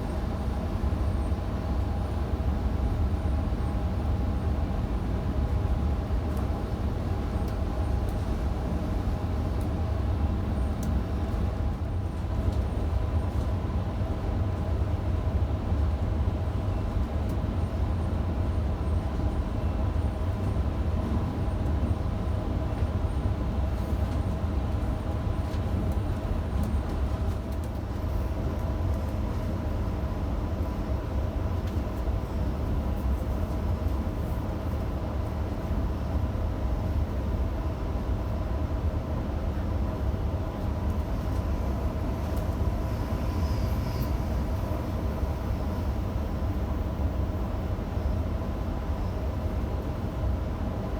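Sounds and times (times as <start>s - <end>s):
electric train rumble: 0.0s - 50.9s
train motor whine: 41.7s - 45.6s.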